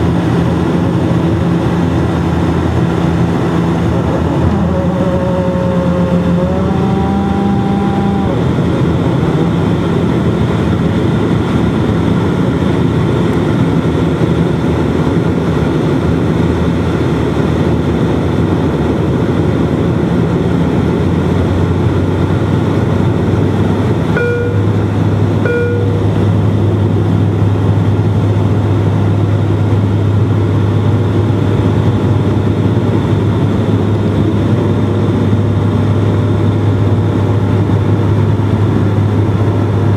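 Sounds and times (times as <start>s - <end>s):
turboprop engines droning: 0.0s - 39.9s
short tones: 24.1s - 26.3s.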